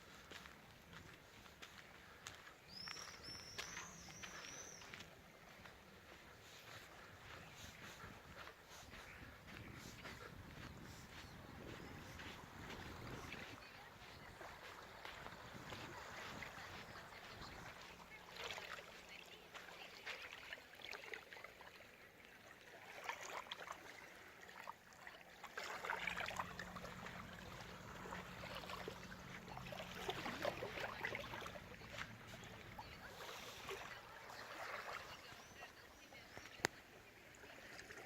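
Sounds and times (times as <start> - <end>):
sea waves lapping: 0.0 - 38.0.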